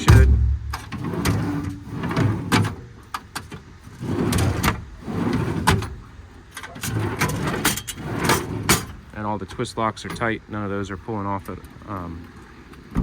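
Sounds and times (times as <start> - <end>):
metal drawers sliding on runners: 0.0 - 9.0.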